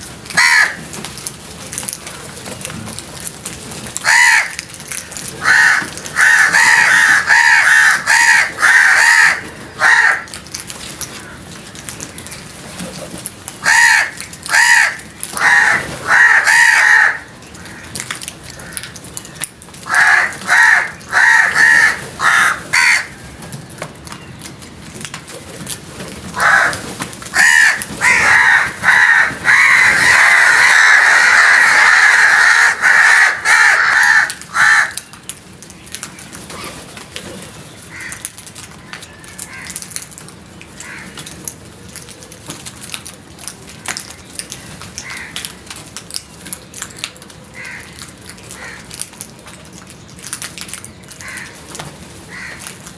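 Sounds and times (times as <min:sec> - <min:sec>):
crows cawing: 0:00.4 - 0:00.9, 0:04.0 - 0:10.4, 0:11.1 - 0:11.6, 0:13.6 - 0:19.1, 0:19.8 - 0:23.4, 0:26.3 - 0:35.1, 0:37.9 - 0:38.4, 0:39.2 - 0:40.0, 0:40.8 - 0:41.3, 0:45.0 - 0:45.5, 0:47.5 - 0:49.0, 0:51.2 - 0:51.6, 0:52.3 - 0:52.8.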